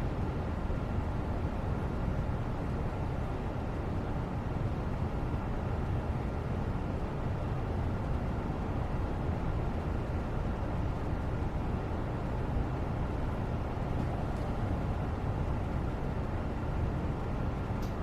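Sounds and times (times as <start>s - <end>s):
constant low rumble: 0.0s - 18.0s.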